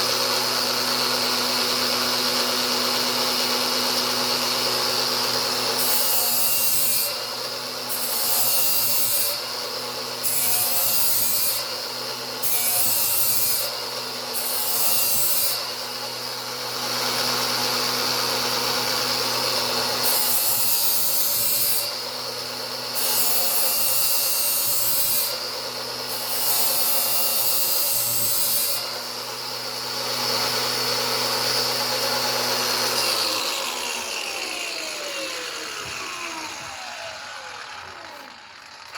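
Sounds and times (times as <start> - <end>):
angle grinder grinding steel: 0.0 - 38.9
grinder winding down: 0.0 - 38.9.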